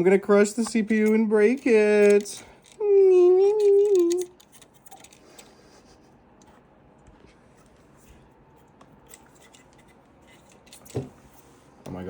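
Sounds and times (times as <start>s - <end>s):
small hard parts clicking and rubbing: 0.0s - 5.6s, 9.0s - 11.1s.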